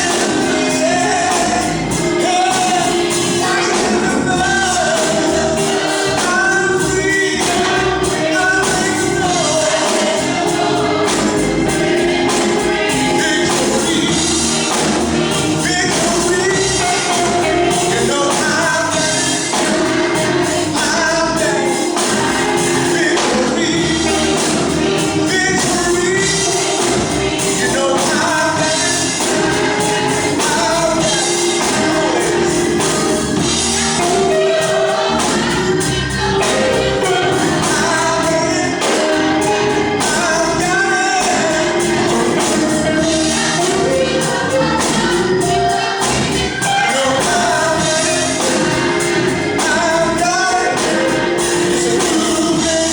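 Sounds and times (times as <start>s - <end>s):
choir singing over a beat: 0.0s - 52.9s.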